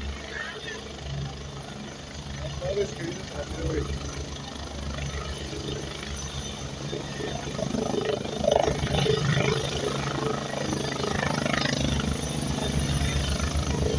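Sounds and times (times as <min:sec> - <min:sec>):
helicopter rotor beating: 0:00.0 - 0:13.9.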